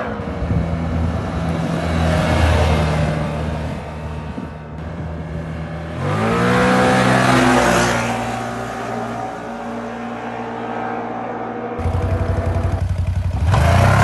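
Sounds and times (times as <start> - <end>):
atv engine idling and revving: 0.0 - 9.9, 11.7 - 14.0.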